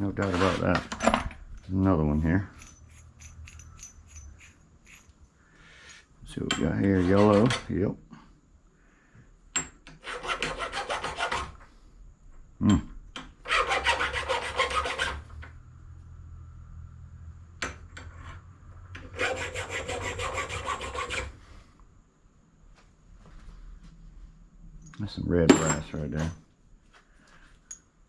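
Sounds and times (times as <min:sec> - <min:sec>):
tool scraping metal: 0:00.0 - 0:07.9, 0:10.0 - 0:11.6, 0:13.5 - 0:15.3, 0:19.0 - 0:21.4.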